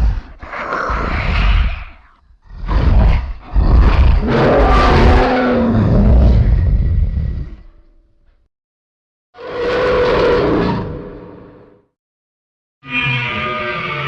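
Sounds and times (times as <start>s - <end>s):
monster roaring: 0.0s - 7.6s.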